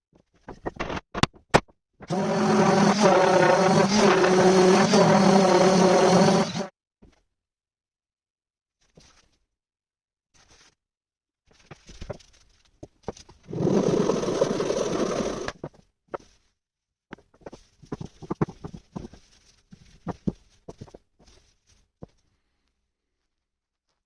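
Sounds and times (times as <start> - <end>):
loud scraping on wood: 2.1 - 6.7, 13.5 - 15.7.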